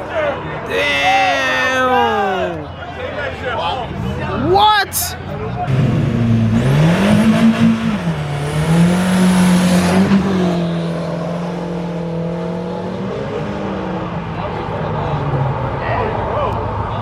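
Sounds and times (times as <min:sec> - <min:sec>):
car engine revving: 0:05.3 - 0:17.0.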